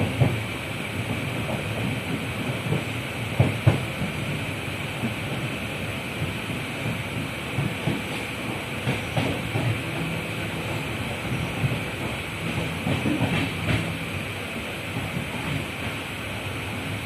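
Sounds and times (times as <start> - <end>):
train rumbling on rails: 0.0 - 17.0
wheels knocking: 6.2 - 16.0.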